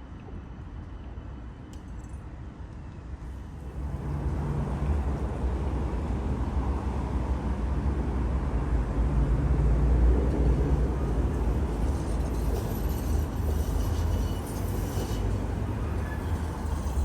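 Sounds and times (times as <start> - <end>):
tram wheels rumbling on rails: 3.5 - 17.0.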